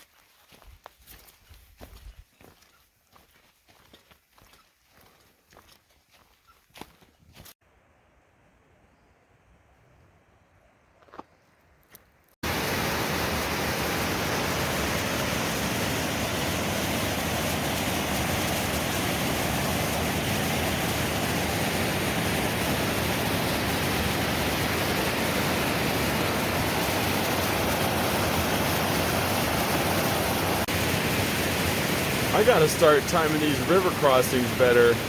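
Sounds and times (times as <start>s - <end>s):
river rushing: 12.4s - 35.0s.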